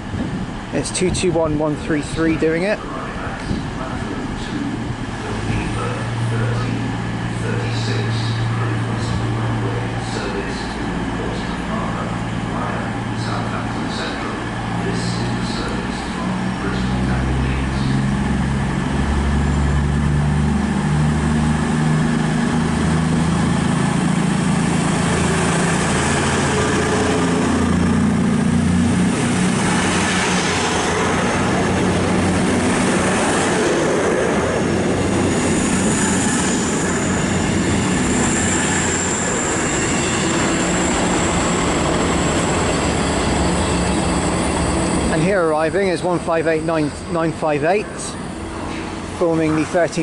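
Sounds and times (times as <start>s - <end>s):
diesel train engines throbbing: 0.0s - 50.0s
rush of train wheels on rail: 0.0s - 50.0s.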